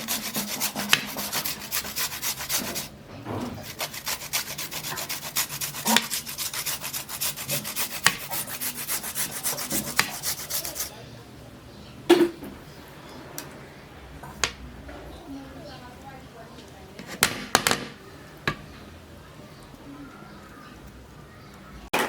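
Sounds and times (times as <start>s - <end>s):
vegetables scraping on grater: 0.0s - 10.9s.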